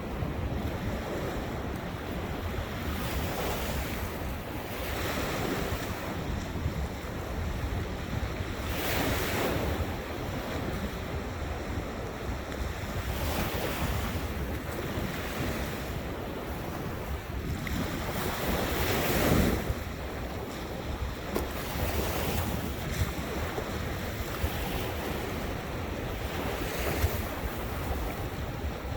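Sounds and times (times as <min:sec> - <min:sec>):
ocean waves breaking: 0:00.0 - 0:28.9
wind buffeting microphone: 0:00.0 - 0:28.9.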